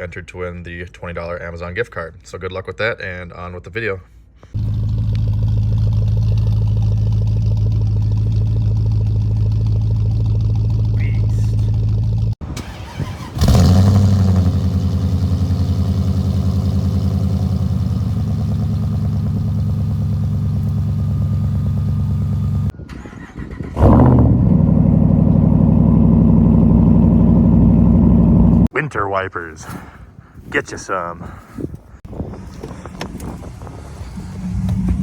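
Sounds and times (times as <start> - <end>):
truck engine idling: 4.6 - 22.7, 24.6 - 28.7
truck engine starting: 4.6 - 28.7, 32.3 - 35.0.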